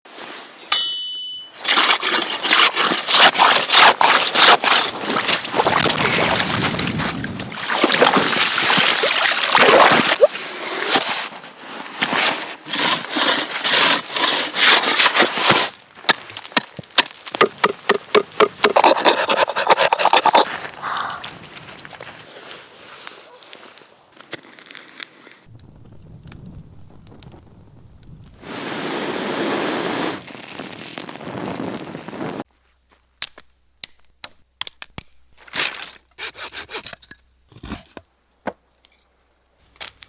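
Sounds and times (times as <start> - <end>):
rough scraping strokes: 1.6 - 6.7, 12.1 - 15.8, 18.3 - 20.8.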